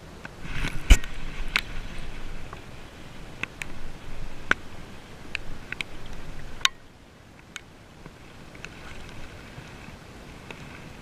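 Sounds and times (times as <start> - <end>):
rain and wind noise: 0.0 - 11.0
raindrops ticking on camera: 3.3 - 9.3.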